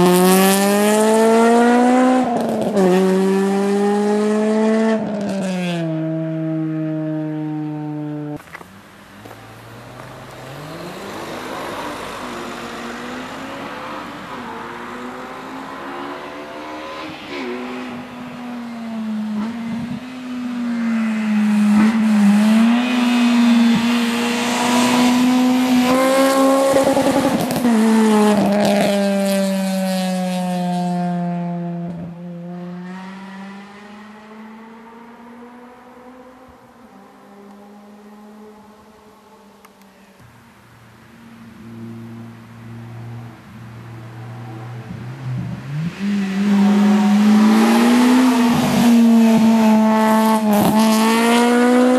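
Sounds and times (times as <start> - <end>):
car engine revving hard: 0.0 - 8.3, 20.9 - 31.7, 44.3 - 51.9.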